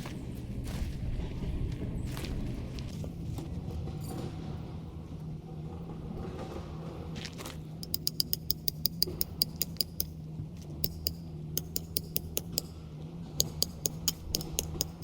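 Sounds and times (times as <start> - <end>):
steady low hum: 0.0 - 15.0
rapid light clicking: 7.8 - 10.2, 10.8 - 12.8, 13.4 - 15.0.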